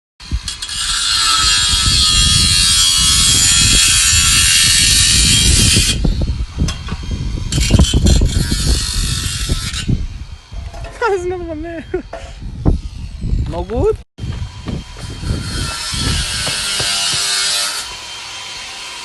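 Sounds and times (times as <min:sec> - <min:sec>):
power tool whining under load: 0:14.2 - 0:19.0.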